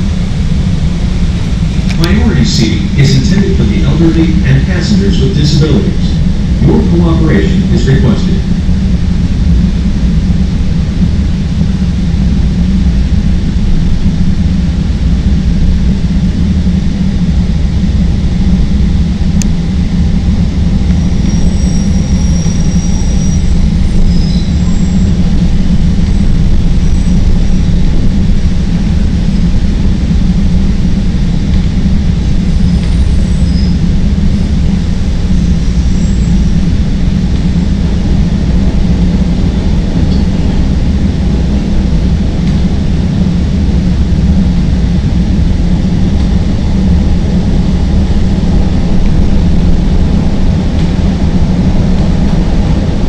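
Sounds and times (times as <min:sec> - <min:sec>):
train wheels rumbling on rails: 0:00.0 - 0:53.0
high squeals: 0:21.0 - 0:25.2.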